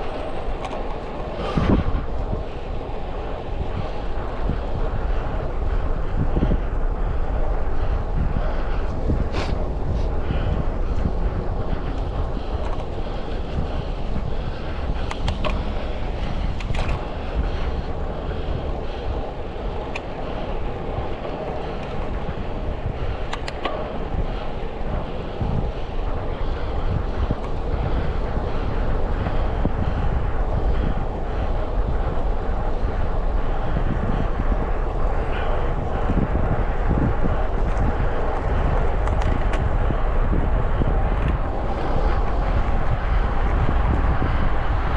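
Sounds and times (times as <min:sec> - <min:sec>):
road and traffic noise: 0:00.0 - 0:44.9
wind rush on microphone: 0:00.0 - 0:44.9
faint clicks: 0:00.1 - 0:01.2, 0:23.1 - 0:24.0.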